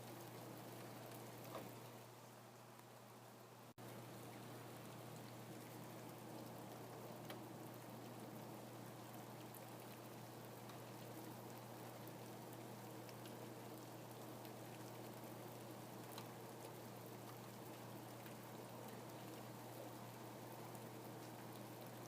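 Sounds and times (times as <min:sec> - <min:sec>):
faint low hum: 0:00.0 - 0:22.0
rain drops ticking: 0:00.0 - 0:22.0
steady rain: 0:00.0 - 0:22.0.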